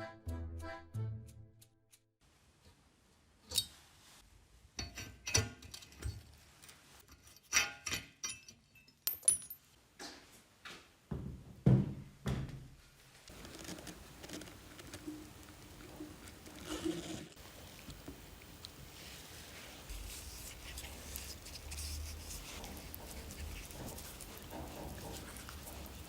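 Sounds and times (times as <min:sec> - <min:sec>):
metal knocks and clinks: 0:07.4 - 0:09.7.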